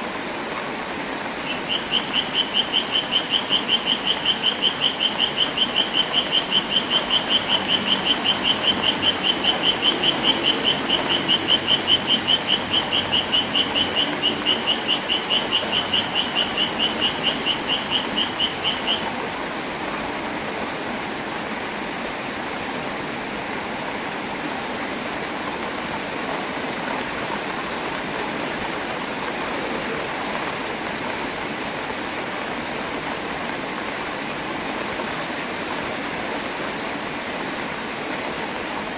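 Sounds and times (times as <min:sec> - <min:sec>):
steady rain hiss: 0:00.0 - 0:38.9
high chirping call: 0:01.4 - 0:19.1.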